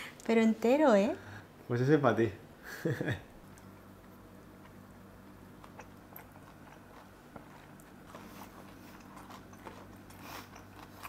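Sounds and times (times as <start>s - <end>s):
people chewing: 3.4s - 11.0s.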